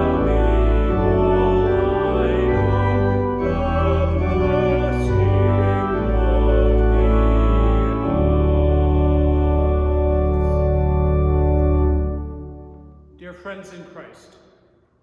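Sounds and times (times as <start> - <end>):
organ playing slow chords: 0.0 - 13.5.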